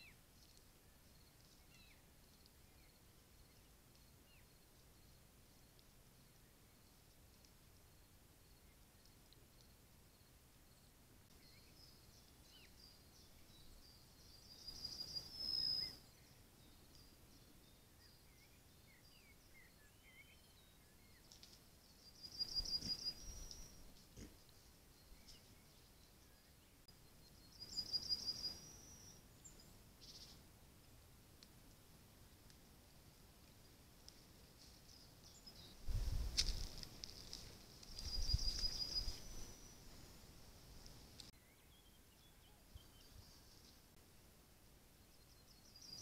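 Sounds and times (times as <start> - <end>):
songbird singing: 0.0 - 31.0, 33.5 - 44.0, 44.9 - 46.0
faint bird chirps: 7.9 - 30.4, 37.1 - 40.2, 41.3 - 44.0, 45.0 - 46.0.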